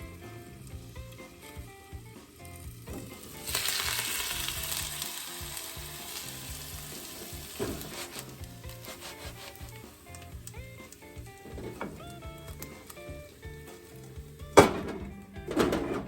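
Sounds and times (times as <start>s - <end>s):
food sizzling in a pan: 0.0s - 14.5s
utensil clacking: 6.9s - 16.0s.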